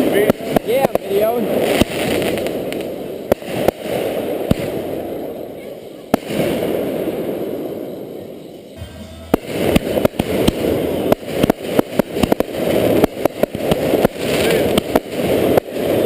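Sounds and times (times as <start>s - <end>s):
crackling hiss: 0.0s - 16.0s
fireworks burst: 0.0s - 16.0s
sharp fireworks cracks: 0.0s - 16.0s.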